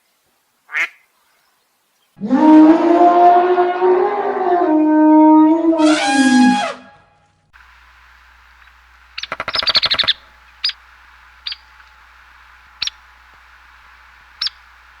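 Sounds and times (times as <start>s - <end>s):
steady hiss: 0.0s - 2.2s, 7.6s - 15.0s
bird chirping: 7.6s - 15.0s.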